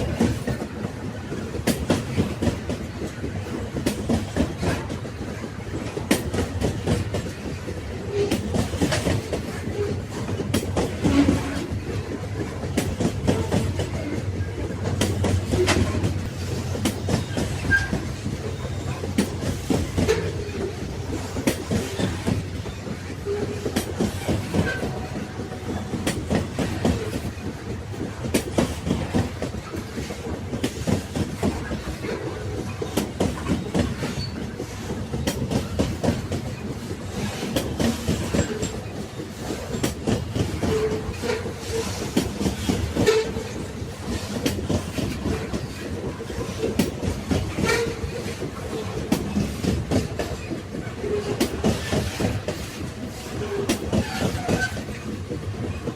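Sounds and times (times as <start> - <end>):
railway cars knocking: 0.0 - 55.9
railway wagons rumbling: 0.0 - 55.9
wheels clacking over rail joints: 0.0 - 55.9.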